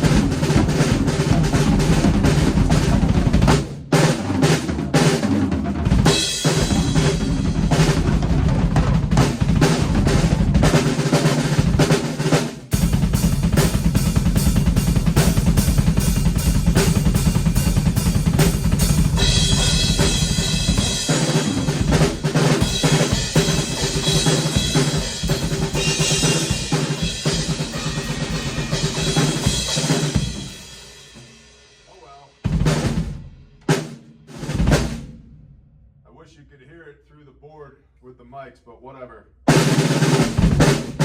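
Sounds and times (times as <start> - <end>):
snare drum rapid strokes: 0.0 - 33.0
cymbals washing: 12.8 - 32.1.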